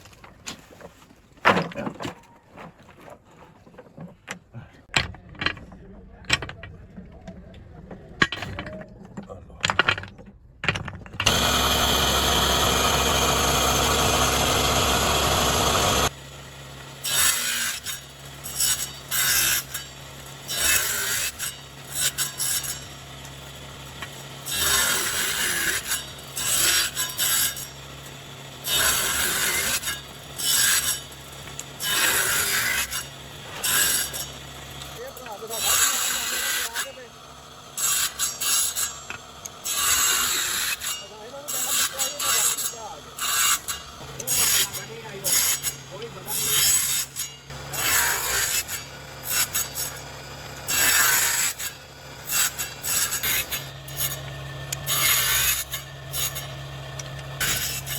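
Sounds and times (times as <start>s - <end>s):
power tool running: 11.2s - 57.9s.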